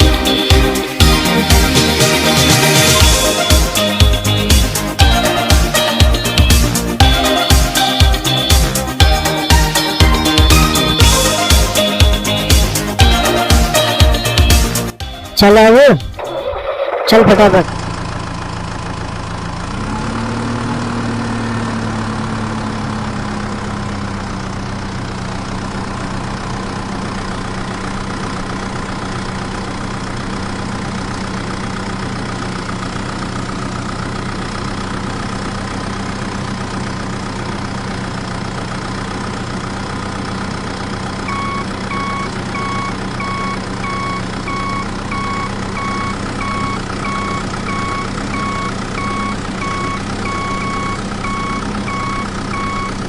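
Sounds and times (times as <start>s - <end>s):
diesel tractor engine idling: 0.0s - 53.0s
reversing beeper: 15.2s - 17.7s, 41.3s - 53.0s.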